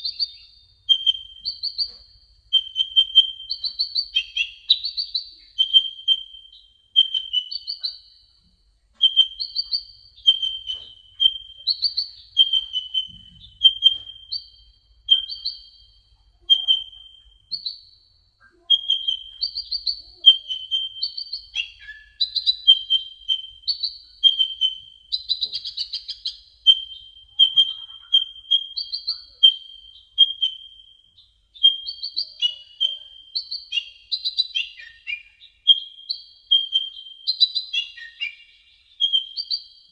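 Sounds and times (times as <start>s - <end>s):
bird chirping high notes: 9.0s - 15.8s, 18.4s - 39.7s.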